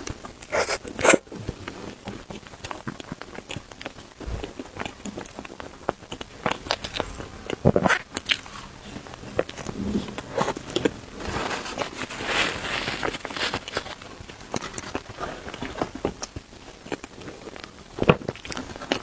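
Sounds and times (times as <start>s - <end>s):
chewing with crisp crackles: 0.0s - 19.0s
hiss-like eating sound: 0.4s - 1.2s.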